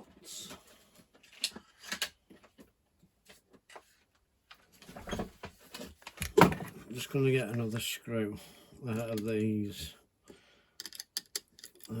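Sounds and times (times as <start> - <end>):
small parts clicking: 10.8 - 12.0.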